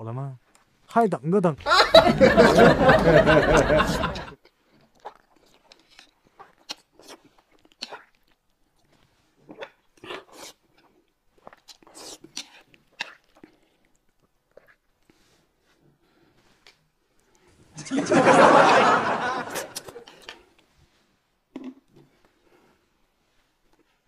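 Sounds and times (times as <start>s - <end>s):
person chewing and mouth-smacking: 4.4s - 15.3s.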